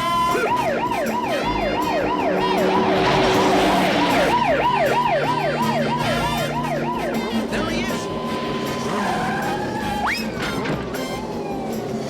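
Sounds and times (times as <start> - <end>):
police siren wailing: 0.0 - 12.0
hissing rush: 1.4 - 6.3.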